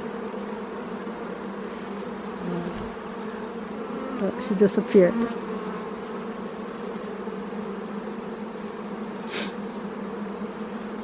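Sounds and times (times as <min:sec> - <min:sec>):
bees buzzing: 0:00.0 - 0:11.0
brief hiss: 0:09.2 - 0:09.6.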